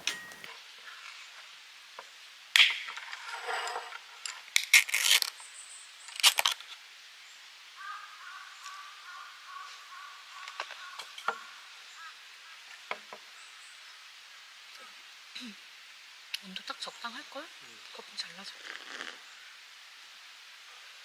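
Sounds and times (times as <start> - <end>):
can and tableware clinking: 0.0 - 0.5.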